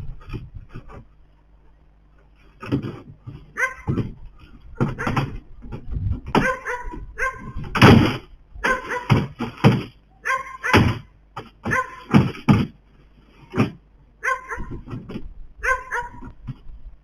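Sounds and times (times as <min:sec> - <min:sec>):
animal calling: 0:03.5 - 0:04.0, 0:10.1 - 0:10.9, 0:11.7 - 0:12.1, 0:14.2 - 0:14.8, 0:15.6 - 0:16.3.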